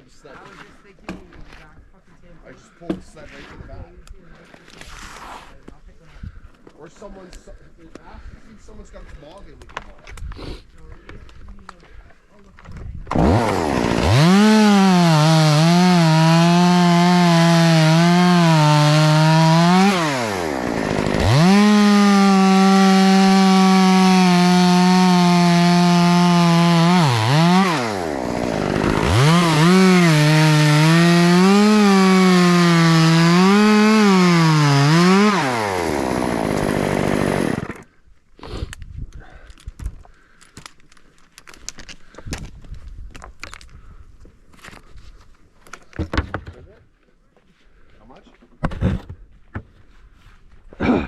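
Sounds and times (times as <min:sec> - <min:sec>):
chainsaw cutting wood: 0:13.1 - 0:37.9.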